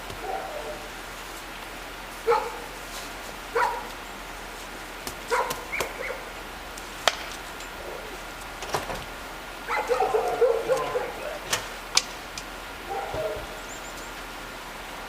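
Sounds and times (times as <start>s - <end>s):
dog barking: 0.1s - 0.9s, 2.2s - 2.7s, 3.5s - 3.9s, 5.3s - 6.3s, 9.6s - 11.6s, 12.8s - 13.7s.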